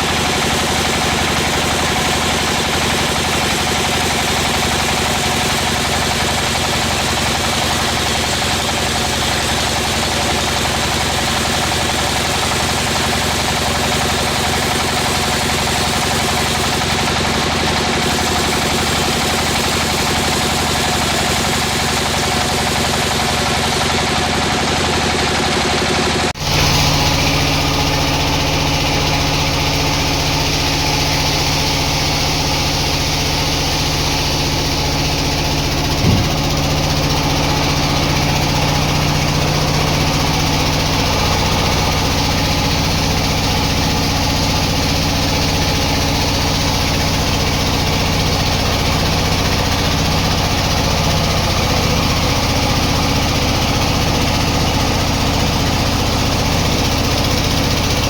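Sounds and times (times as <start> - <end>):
sawmill machinery humming: 0.0 - 58.0
brief knock: 36.0 - 36.6.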